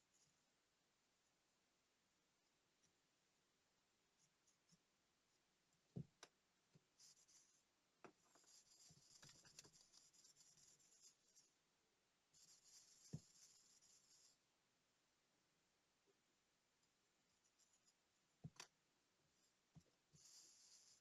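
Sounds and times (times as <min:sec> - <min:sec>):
faint scratchy rubbing: 0:07.0 - 0:07.6, 0:08.2 - 0:11.6, 0:12.4 - 0:14.4, 0:20.2 - 0:21.0.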